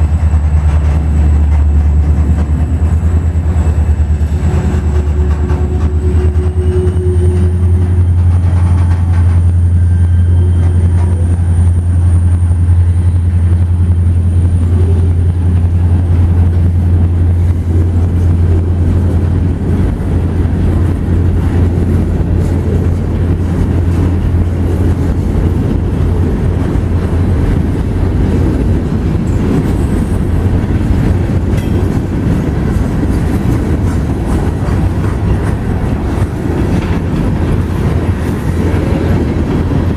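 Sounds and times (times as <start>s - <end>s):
deep low drone: 0.0s - 39.9s
freight train wheels rumbling: 0.0s - 39.9s.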